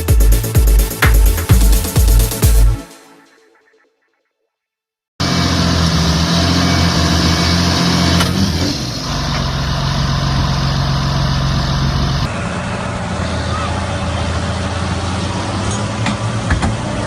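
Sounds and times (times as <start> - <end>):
heavy vehicle engine running: 5.2 - 17.0.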